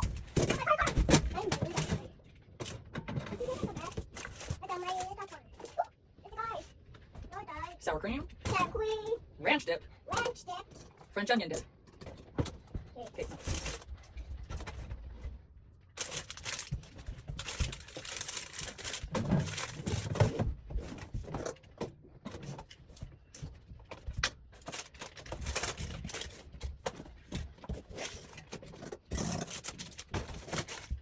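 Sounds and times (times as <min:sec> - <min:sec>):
packages rustling: 0:15.9 - 0:21.6, 0:24.0 - 0:31.0.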